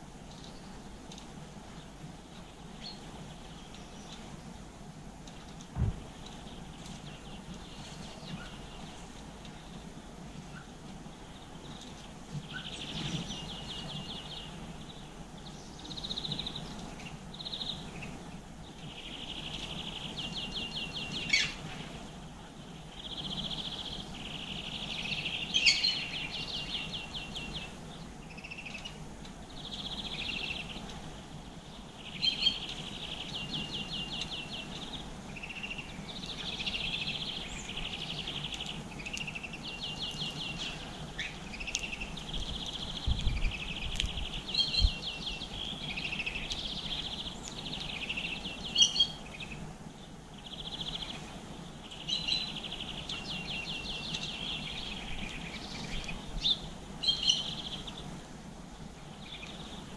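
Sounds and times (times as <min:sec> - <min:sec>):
songbird singing trills: 0:05.8 - 0:58.1, 0:59.0 - 0:59.9
sharp bird clicks: 0:37.9 - 0:49.1.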